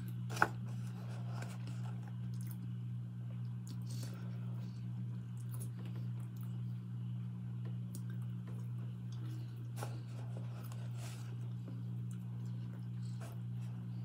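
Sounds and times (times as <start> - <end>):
steady low hum: 0.0 - 14.0
person chewing: 5.3 - 6.6.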